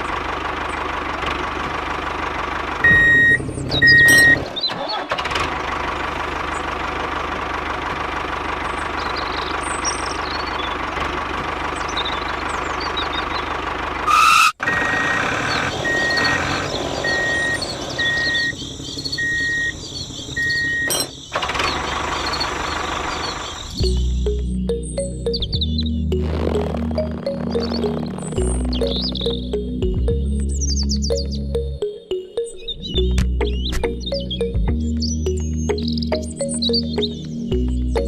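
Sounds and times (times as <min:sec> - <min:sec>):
engine running steadily: 0:00.0 - 0:31.9, 0:32.9 - 0:38.0
vehicle reversing alarm beeps: 0:02.8 - 0:04.6, 0:14.2 - 0:21.3.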